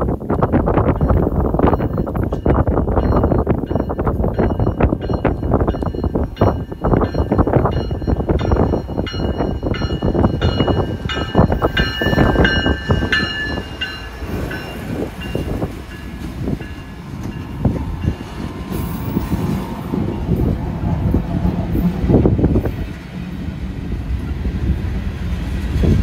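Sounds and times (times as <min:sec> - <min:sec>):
freight train rumbling past: 0:00.0 - 0:26.0
high ringing tones: 0:00.9 - 0:20.6.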